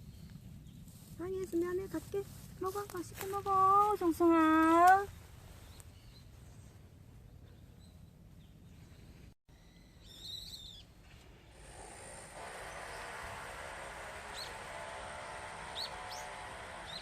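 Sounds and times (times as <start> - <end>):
outdoor noise hiss: 0.0 - 17.0
high warbling bird chirp: 9.5 - 11.0, 14.3 - 14.6.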